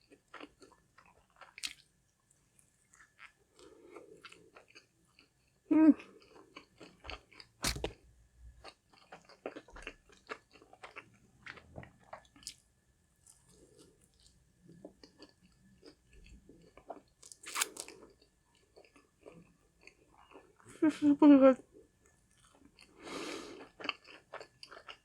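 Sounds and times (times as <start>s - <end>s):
crunchy chewing: 6.2s - 8.0s, 15.0s - 20.5s, 23.5s - 25.0s.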